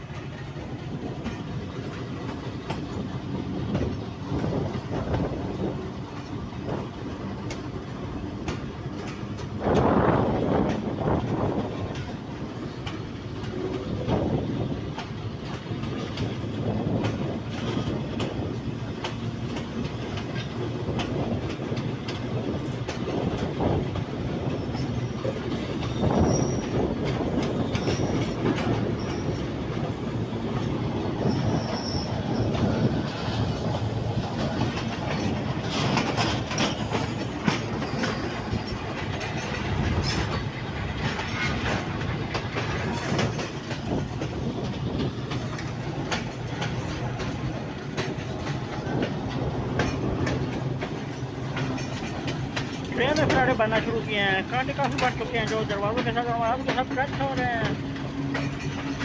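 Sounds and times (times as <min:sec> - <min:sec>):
train coaches rumbling: 0:00.0 - 0:59.0
wheels clacking over rail joints: 0:00.0 - 0:59.0
high wheel squeals: 0:24.6 - 0:26.9, 0:27.6 - 0:29.6, 0:31.2 - 0:32.8.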